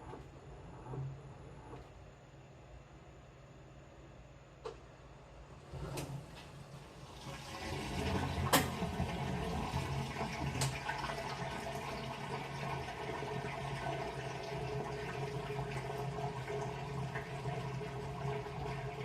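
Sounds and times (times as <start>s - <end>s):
washing machine hum: 0.0s - 19.0s
water sloshing in washing machine: 5.5s - 19.0s.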